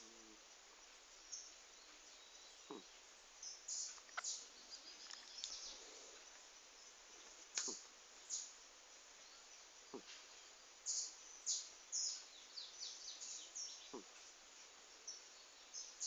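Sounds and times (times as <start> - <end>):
faint steady hiss: 0.0 - 16.0
birds chirping: 1.3 - 8.6, 9.2 - 14.3.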